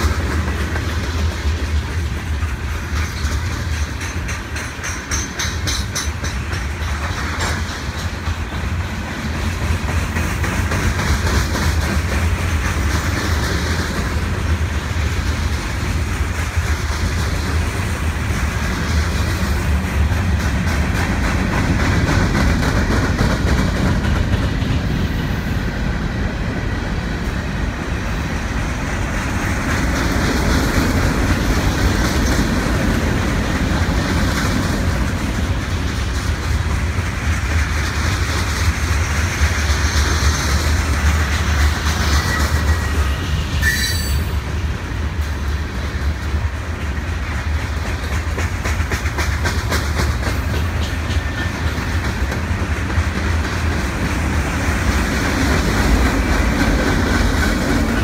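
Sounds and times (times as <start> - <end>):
wheels clicking over track: 0.0 - 25.1, 45.1 - 58.0
train wheels rumbling on rails: 0.0 - 58.0.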